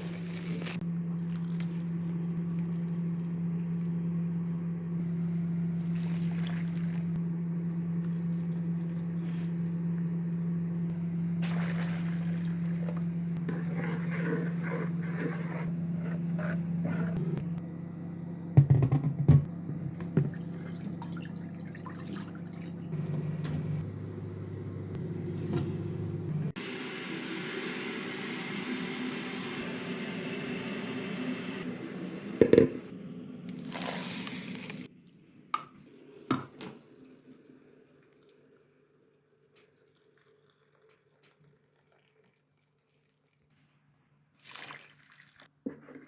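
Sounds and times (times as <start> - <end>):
steady low hum: 0.2 - 21.4
liquid hissing: 33.6 - 34.9.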